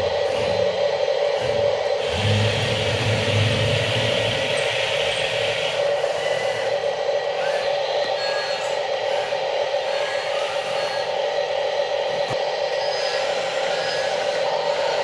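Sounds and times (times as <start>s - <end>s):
toy motor and gearbox whining: 0.0s - 11.2s, 12.2s - 15.0s.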